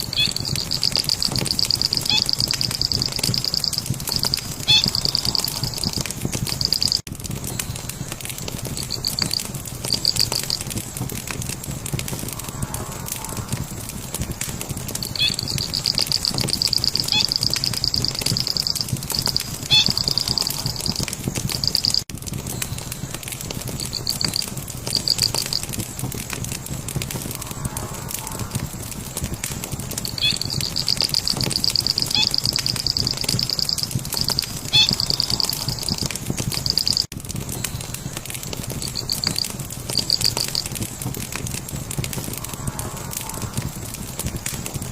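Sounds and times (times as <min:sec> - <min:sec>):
bird trilling: 0:00.0 - 0:07.0, 0:15.2 - 0:22.0, 0:30.2 - 0:36.0
fire crackling: 0:00.0 - 0:44.9.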